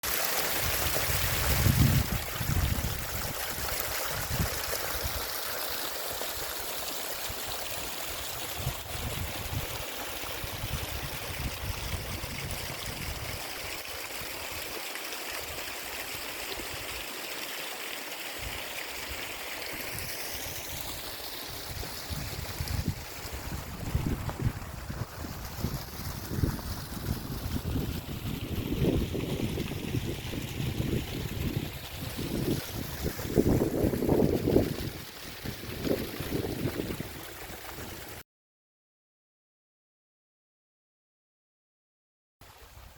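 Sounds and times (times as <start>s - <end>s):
mountain stream rushing: 0.0s - 28.1s, 28.8s - 38.2s
wind buffeting microphone: 0.7s - 5.2s, 8.5s - 9.8s, 10.4s - 13.3s, 21.6s - 38.0s.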